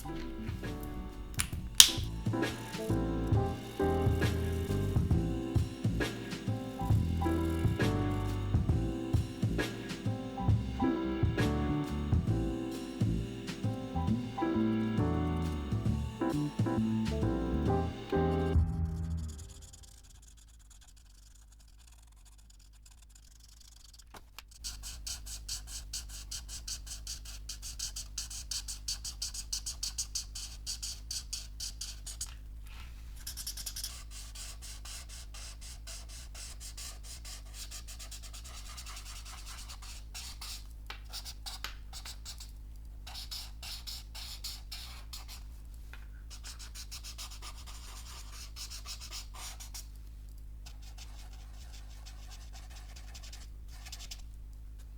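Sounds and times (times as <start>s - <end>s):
pen nib scratching on paper: 0.0s - 10.5s, 15.4s - 32.4s, 33.2s - 45.5s, 46.3s - 49.9s, 50.6s - 54.3s
steady low hum: 0.0s - 20.9s.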